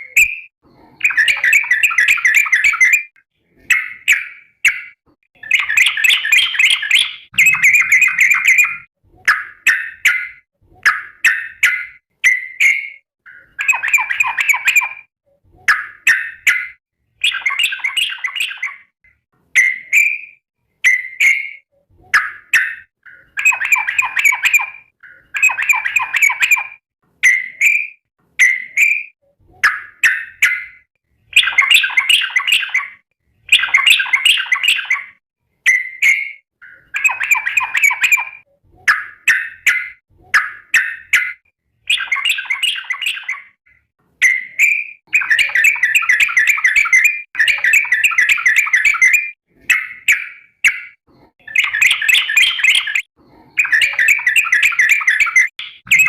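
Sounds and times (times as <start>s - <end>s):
bulbul chattering call: 5.5s - 8.9s, 51.6s - 56.0s.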